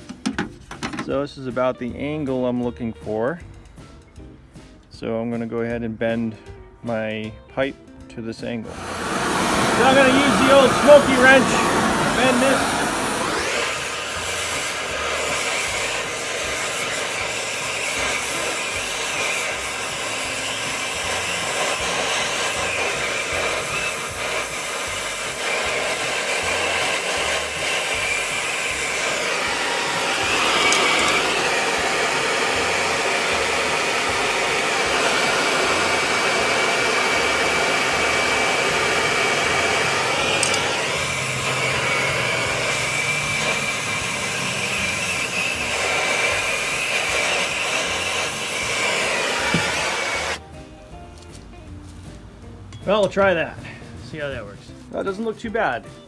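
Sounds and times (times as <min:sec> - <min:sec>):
gas torch flame hissing: 0:08.6 - 0:50.4.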